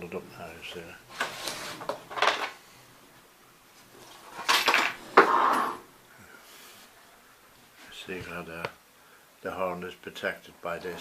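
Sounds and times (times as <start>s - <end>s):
rustling and scraping knocks: 4.0s - 5.8s.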